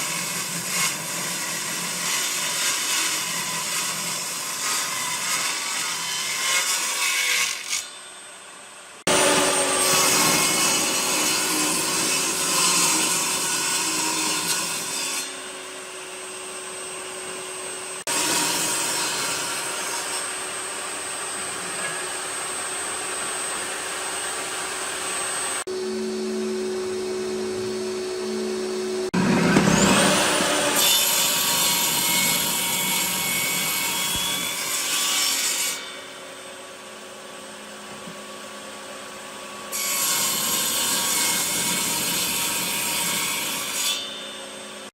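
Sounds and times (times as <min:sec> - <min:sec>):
sharp rising whine: 0:22.5 - 0:30.8
wood being sawn: 0:27.6 - 0:35.9.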